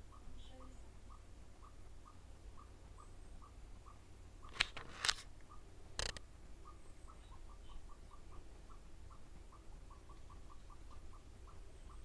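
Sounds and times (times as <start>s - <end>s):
noisy rustles: 4.4s - 5.3s, 5.9s - 6.2s.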